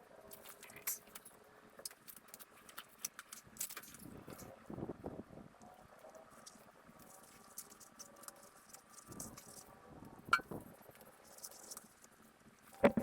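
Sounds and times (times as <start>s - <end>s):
handling clicks and rustles: 11.3s - 13.0s.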